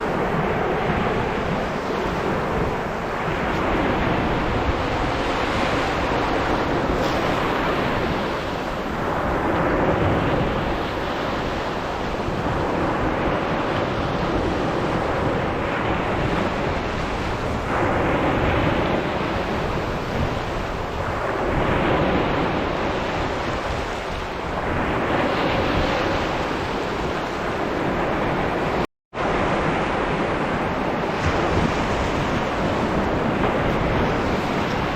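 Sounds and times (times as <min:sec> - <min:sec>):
waves breaking on beach: 0:00.0 - 0:34.9
wind on microphone: 0:00.0 - 0:34.9.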